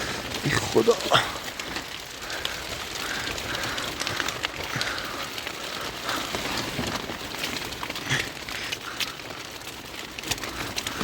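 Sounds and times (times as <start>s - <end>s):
rain on tent fabric: 0.0s - 11.0s.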